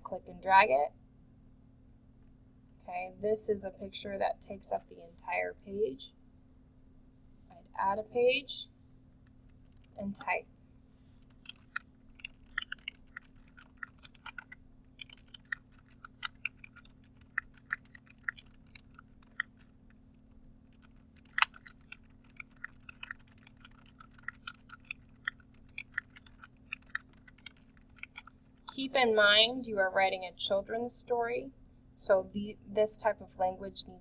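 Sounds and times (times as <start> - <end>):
faint steady hum: 0.0 - 34.0
typing on computer keyboard: 11.3 - 19.8, 20.7 - 28.4.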